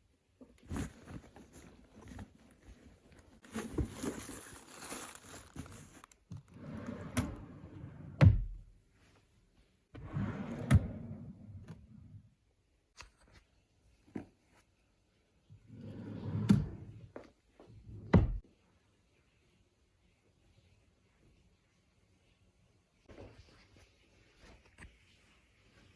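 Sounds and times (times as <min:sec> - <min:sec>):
rustling: 0:00.4 - 0:06.9.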